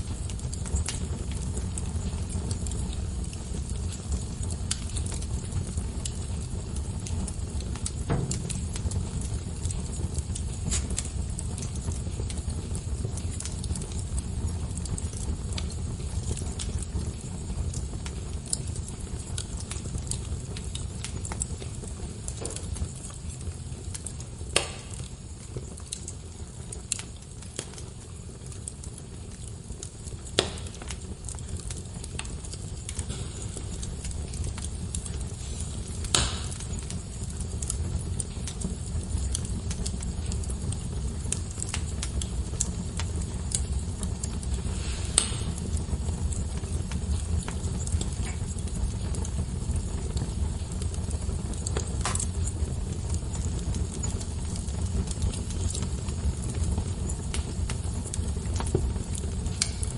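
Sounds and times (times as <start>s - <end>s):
fire crackling in a fireplace: 0.0s - 59.9s
loud fire pops: 0.0s - 59.9s.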